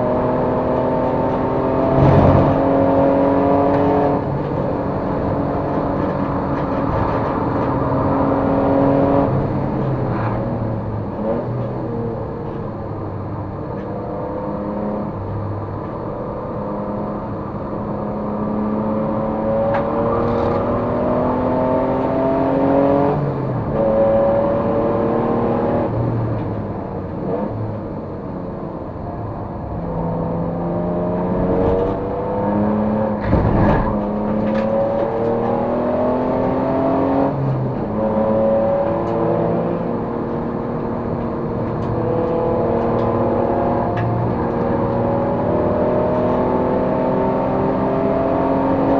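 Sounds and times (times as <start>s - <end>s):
race car engine shifting gears: 0.2s - 12.7s, 19.1s - 27.9s, 29.7s - 48.9s.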